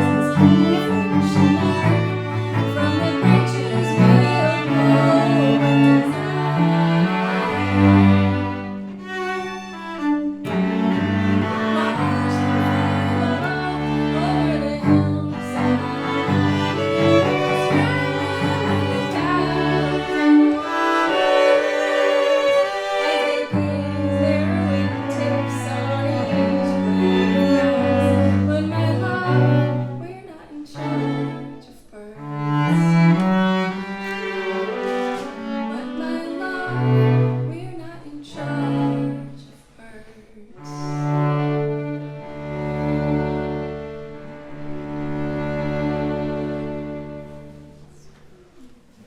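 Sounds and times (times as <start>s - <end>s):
cello low held notes: 0.0s - 30.1s
bowed string music: 0.0s - 39.5s, 40.6s - 49.0s.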